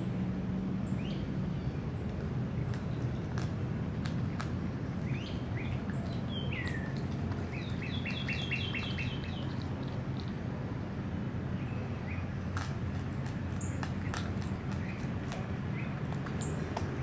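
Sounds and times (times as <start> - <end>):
steady low rumble: 0.0 - 17.0
birds chirping and calling: 4.2 - 10.4, 13.5 - 17.0.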